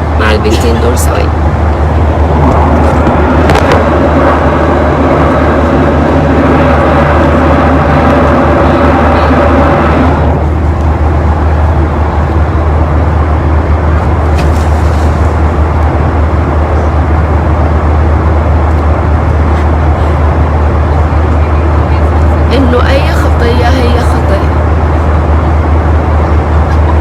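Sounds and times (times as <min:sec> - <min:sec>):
steady pitched tone: 0:00.0 - 0:14.3
vehicle road noise: 0:00.0 - 0:27.0.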